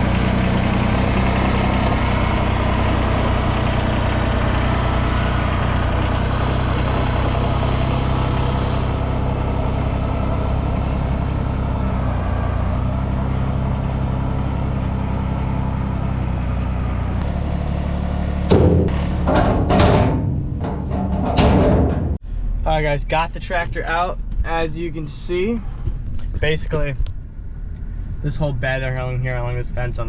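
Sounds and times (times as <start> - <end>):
engine running: 0.0 - 30.0
sharp knocks: 18.5 - 22.2.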